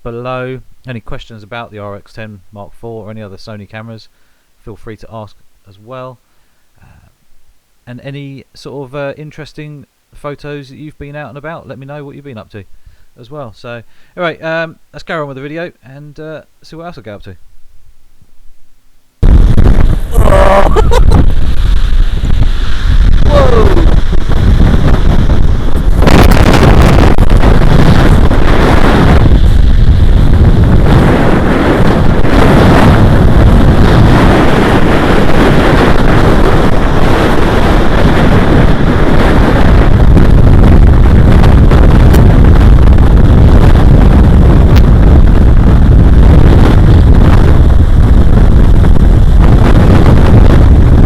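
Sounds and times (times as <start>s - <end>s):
surf on shore: 19.2s - 51.0s
wind blasting microphone: 19.2s - 51.0s.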